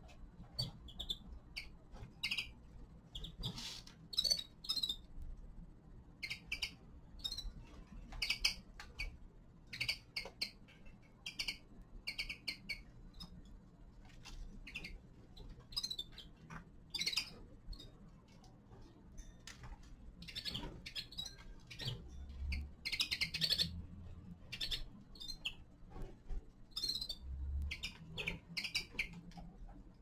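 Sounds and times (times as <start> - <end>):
finches chirping: 0.4 - 5.1, 6.2 - 13.4, 14.6 - 18.0, 20.2 - 25.7, 26.7 - 29.4.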